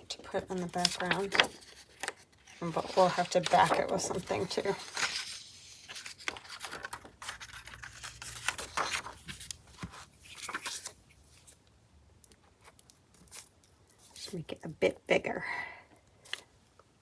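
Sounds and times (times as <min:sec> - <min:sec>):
paper rustling and crinkling: 0:00.3 - 0:11.6, 0:12.6 - 0:14.5.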